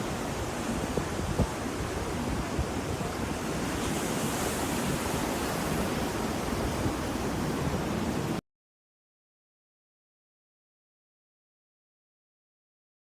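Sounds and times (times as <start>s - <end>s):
ocean waves rushing: 0.0s - 8.4s.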